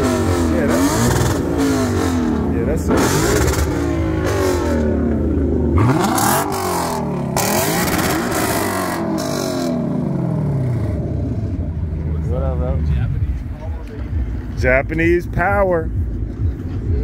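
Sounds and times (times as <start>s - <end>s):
car engine revving hard: 0.0s - 11.6s.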